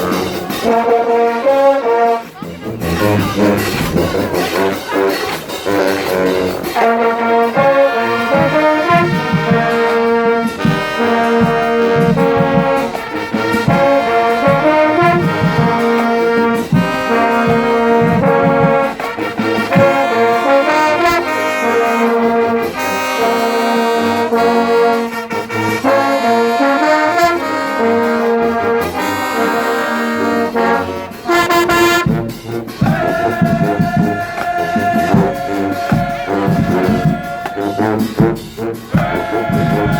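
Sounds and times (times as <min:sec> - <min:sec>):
marching band brass: 0:00.0 - 0:39.9
marching band drums: 0:00.0 - 0:39.9.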